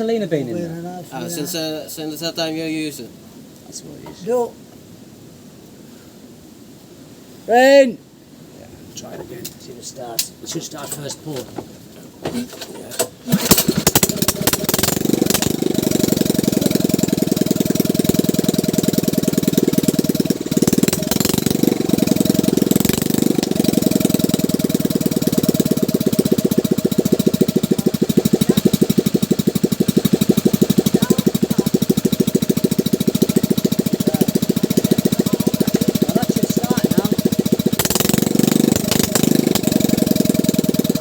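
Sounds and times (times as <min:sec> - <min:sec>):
small boat engine starting and running: 0:12.3 - 0:41.0.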